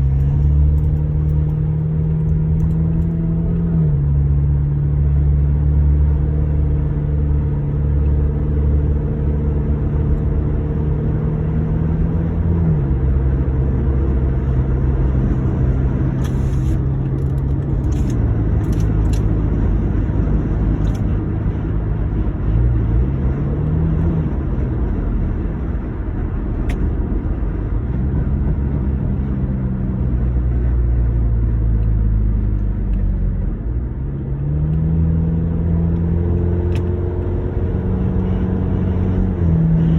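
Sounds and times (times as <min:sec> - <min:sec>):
car engine revving: 0:21.9 - 0:39.9.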